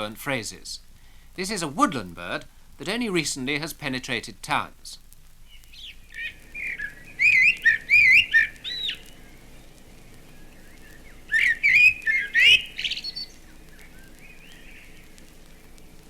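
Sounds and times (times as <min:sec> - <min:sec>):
blackbird singing: 0:05.5 - 0:09.7, 0:10.3 - 0:15.0.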